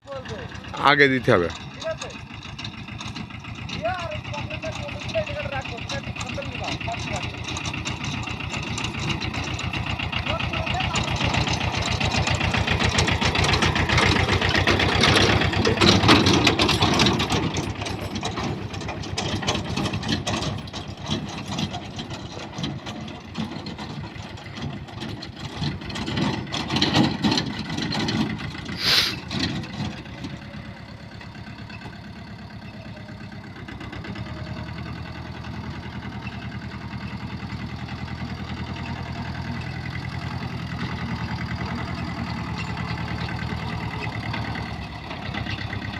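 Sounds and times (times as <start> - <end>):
diesel engines running: 0.0 - 45.9
brief hiss: 28.8 - 29.2.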